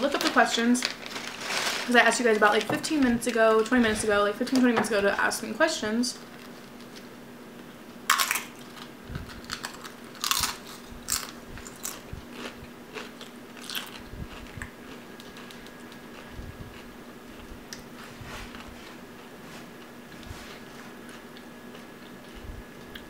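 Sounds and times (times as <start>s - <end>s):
crunchy chewing of fried food: 8.1s - 23.0s.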